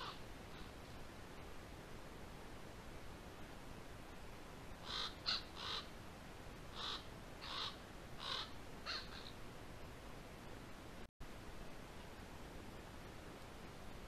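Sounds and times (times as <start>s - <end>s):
crow calling: 0.0s - 0.2s, 4.8s - 5.9s, 6.7s - 9.4s.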